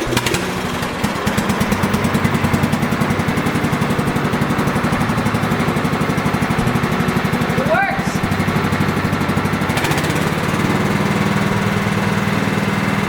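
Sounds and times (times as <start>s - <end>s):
lawn tractor engine running: 0.0s - 13.0s.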